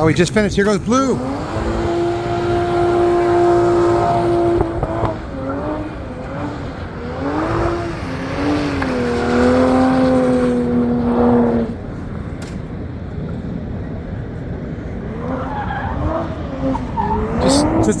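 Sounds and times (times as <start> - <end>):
car engine revving hard: 0.6 - 11.9, 15.1 - 18.0.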